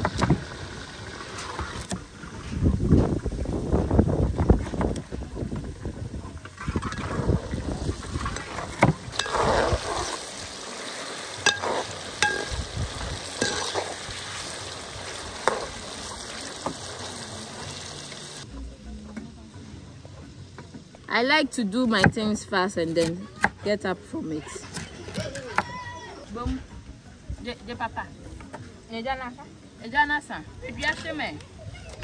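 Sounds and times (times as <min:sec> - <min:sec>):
food sizzling in hot oil: 0:07.0 - 0:18.5.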